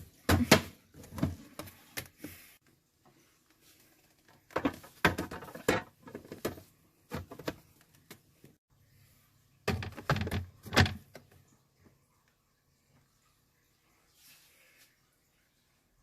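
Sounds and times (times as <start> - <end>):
objects knocking and clattering: 4.2 - 8.3, 9.6 - 11.4.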